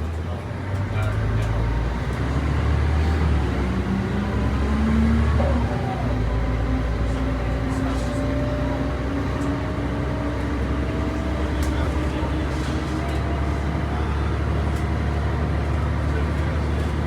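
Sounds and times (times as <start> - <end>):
bus diesel engine drone: 0.0 - 17.0.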